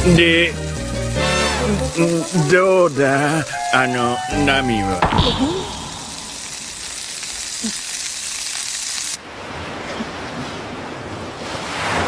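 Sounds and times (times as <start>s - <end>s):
food sizzling on griddle: 0.0s - 9.2s.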